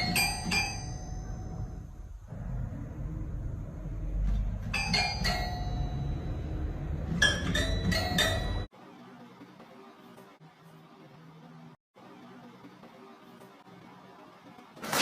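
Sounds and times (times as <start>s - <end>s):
low rumble: 1.5s - 4.8s
bell-like ringing strikes: 4.7s - 8.7s.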